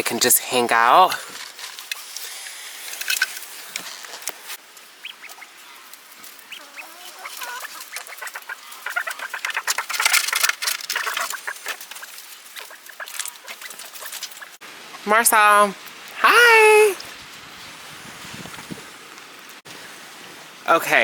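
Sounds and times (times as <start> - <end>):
quail chirping: 5.0 - 5.6, 6.4 - 10.1, 10.9 - 14.6
clicks and rustling: 7.7 - 14.5.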